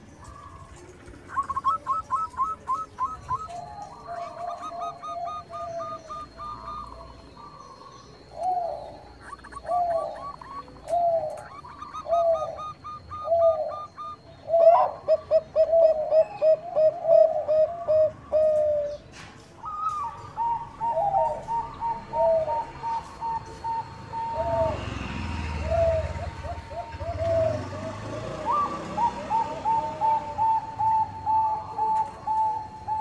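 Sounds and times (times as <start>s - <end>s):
light bird chirping: 0.0s - 15.4s
dove cooing: 0.0s - 33.0s.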